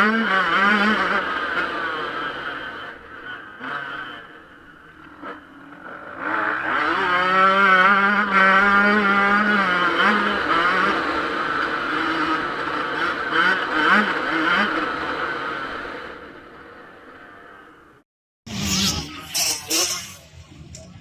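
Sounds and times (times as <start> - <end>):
motocross engine revving: 0.0 - 21.0.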